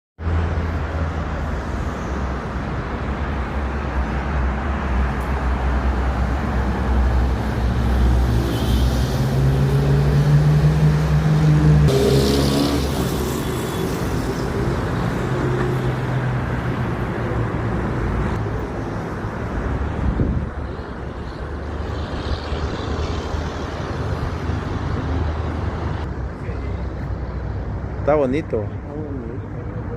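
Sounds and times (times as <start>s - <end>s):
road traffic rumble: 0.2s - 29.9s
vehicle engine revving: 7.8s - 16.1s.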